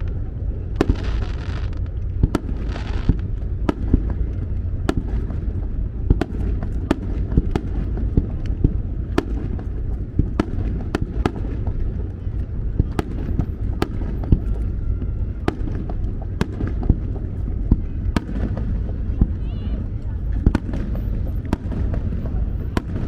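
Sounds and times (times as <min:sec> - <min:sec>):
continuous low rumble: 0:00.0 - 0:23.0
fireworks bangs: 0:00.2 - 0:23.0
fireworks hissing crackle: 0:00.8 - 0:04.3.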